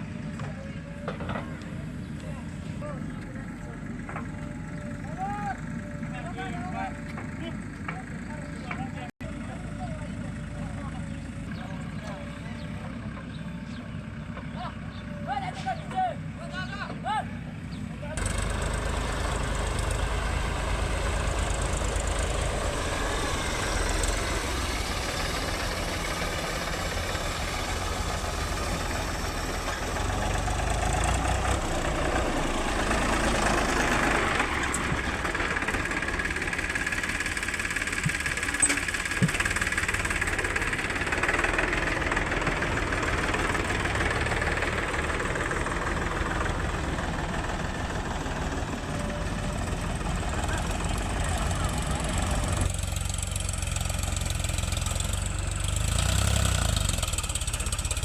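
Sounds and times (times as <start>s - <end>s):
diesel engine of heavy machinery: 0.0s - 58.0s.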